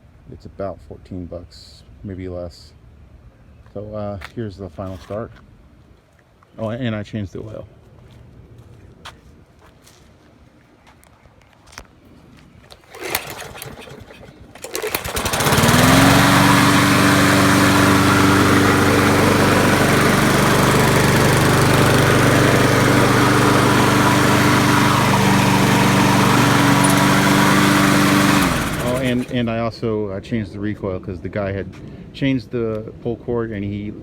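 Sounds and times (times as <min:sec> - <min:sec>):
recoil starter clicks and pull: 0:12.7 - 0:16.5, 0:24.6 - 0:29.4
lawn mower engine running: 0:12.8 - 0:29.6.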